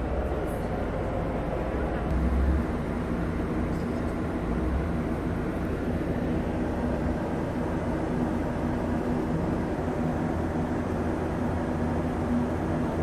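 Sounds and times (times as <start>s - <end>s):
vehicle engine rumble: 0.0s - 12.6s.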